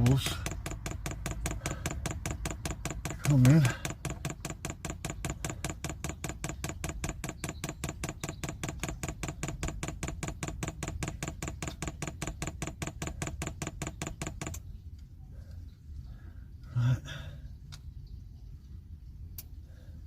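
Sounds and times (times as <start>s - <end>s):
fuel pump clicking rapidly: 0.0s - 14.7s.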